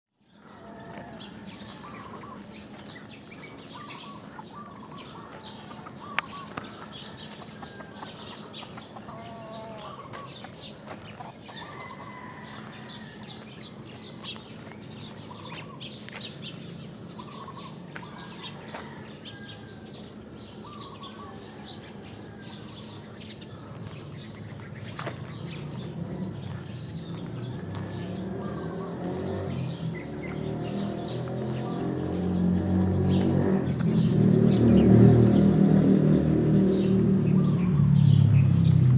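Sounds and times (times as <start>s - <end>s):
small birds chirping: 0.2s - 38.9s
chickens clucking: 0.6s - 16.2s.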